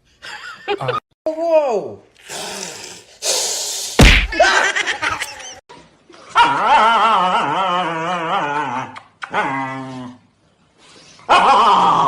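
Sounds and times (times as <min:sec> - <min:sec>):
sharp knock: 0:04.0 - 0:04.5.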